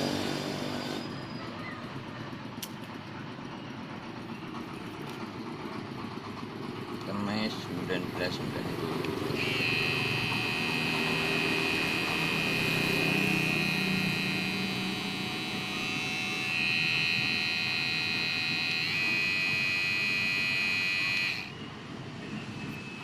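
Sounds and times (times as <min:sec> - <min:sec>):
electric shaver buzzing: 0:09.3 - 0:21.6.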